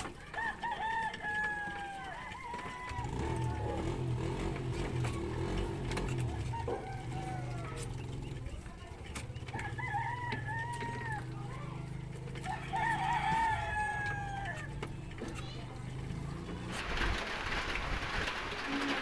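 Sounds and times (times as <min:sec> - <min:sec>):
rooster crowing: 0:00.3 - 0:03.9, 0:06.2 - 0:08.0, 0:09.5 - 0:11.3, 0:12.4 - 0:14.8.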